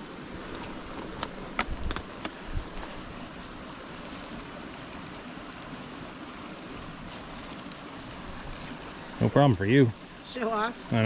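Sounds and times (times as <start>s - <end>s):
rushing outdoor noise: 0.0s - 11.0s
footsteps on wet rock: 0.4s - 3.1s.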